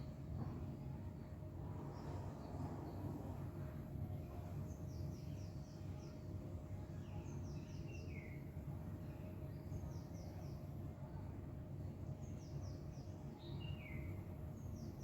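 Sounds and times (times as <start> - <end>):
songbird chirping: 4.3 - 11.4, 12.0 - 15.0.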